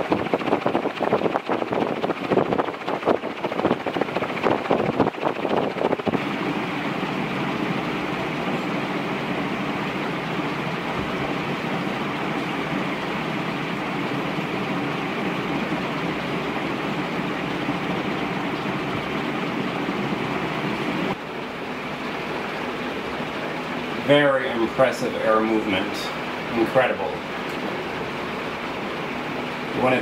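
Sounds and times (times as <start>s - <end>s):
ceiling fan air rushing: 0.0s - 30.0s.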